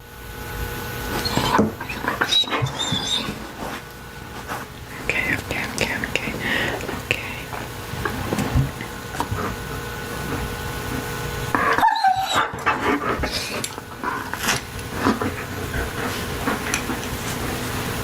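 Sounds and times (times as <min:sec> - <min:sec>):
dog barking and yelping: 0:01.2 - 0:03.5, 0:11.6 - 0:13.3.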